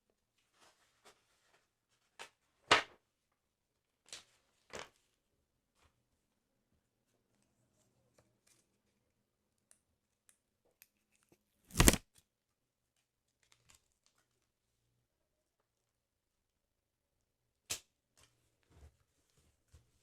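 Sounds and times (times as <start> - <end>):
paper handling ticks: 11.7 - 12.0
paper page tearing: 11.7 - 12.0.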